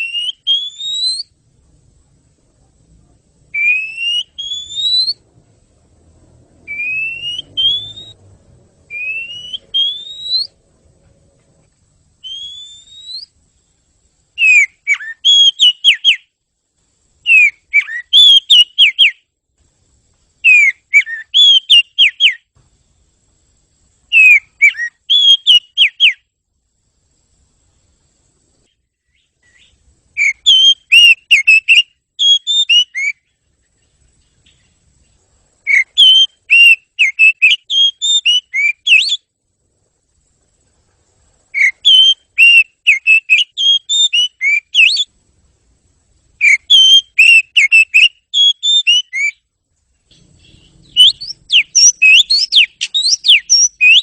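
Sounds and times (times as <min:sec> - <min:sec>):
bird singing whistled phrases: 0:00.0 - 0:01.4, 0:03.5 - 0:05.2, 0:06.6 - 0:08.2, 0:08.9 - 0:10.6, 0:12.2 - 0:13.4, 0:14.4 - 0:16.3, 0:17.2 - 0:19.2, 0:20.4 - 0:22.5, 0:24.1 - 0:26.2, 0:29.1 - 0:33.3, 0:35.7 - 0:39.3, 0:41.5 - 0:45.1, 0:46.4 - 0:49.4, 0:50.1 - 0:54.0.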